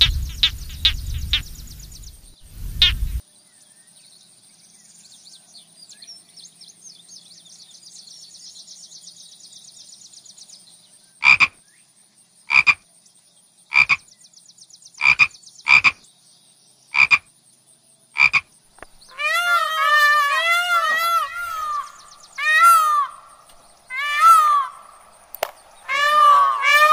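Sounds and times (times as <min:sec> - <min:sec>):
frog croaking: 0:00.0 - 0:01.8, 0:11.2 - 0:11.6, 0:12.5 - 0:12.8, 0:13.7 - 0:14.1, 0:15.0 - 0:16.0, 0:16.9 - 0:17.3, 0:18.2 - 0:19.7
faint high chirping: 0:00.0 - 0:12.4, 0:18.7 - 0:26.9
loud wavering call: 0:19.1 - 0:26.9.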